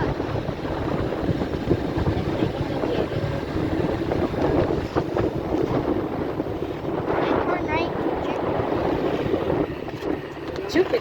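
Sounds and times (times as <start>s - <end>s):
vehicle engine and road noise: 0.0s - 11.0s
wind rushing over microphone: 0.0s - 11.0s.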